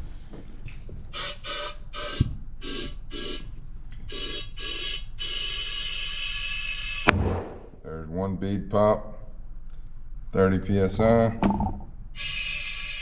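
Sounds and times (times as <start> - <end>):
compressed air hissing into tire: 1.1 - 7.1
single knock: 11.4 - 11.9.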